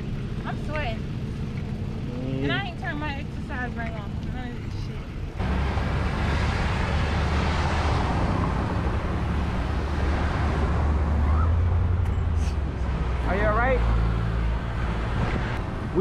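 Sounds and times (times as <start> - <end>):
road and traffic noise: 0.0 - 16.0
wind rushing over microphone: 14.8 - 16.0.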